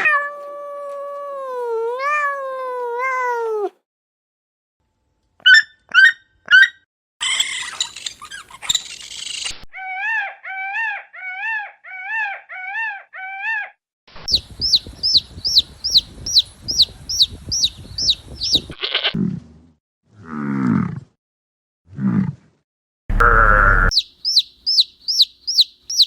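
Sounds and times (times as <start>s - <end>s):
rapid high-pitched peeping: 14.3s - 18.8s, 23.2s - 26.0s.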